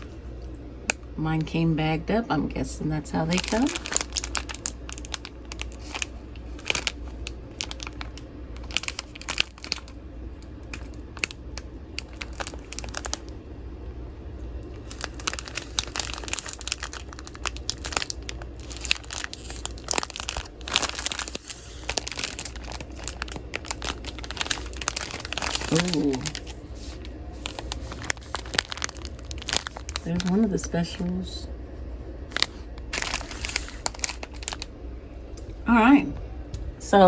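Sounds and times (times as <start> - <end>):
plastic bags crinkling: 3.1 - 13.3, 14.6 - 31.3, 32.3 - 34.7.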